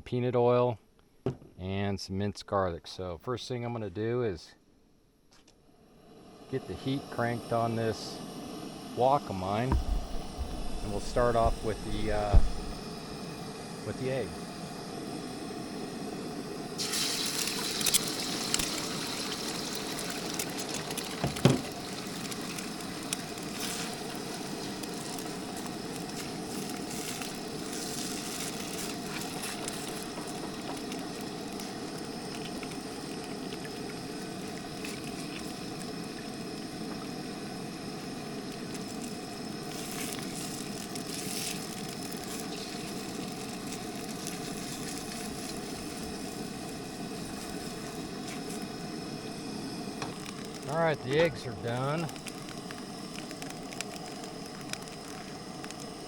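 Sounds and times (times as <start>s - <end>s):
eggs sizzling in oil: 14.4s - 56.0s.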